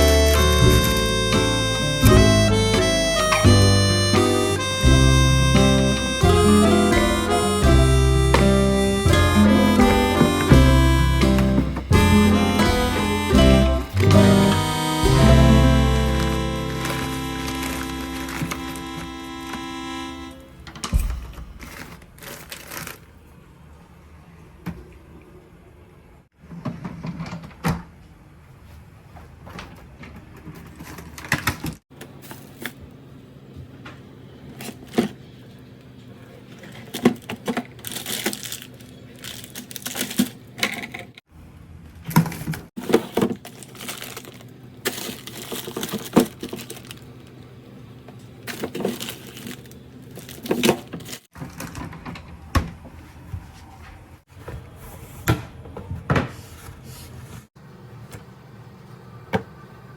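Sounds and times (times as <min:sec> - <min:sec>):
objects being handled: 0:14.0 - 0:19.9, 0:20.7 - 0:23.2, 0:36.4 - 0:41.2, 0:42.1 - 0:47.3, 0:48.2 - 0:52.2.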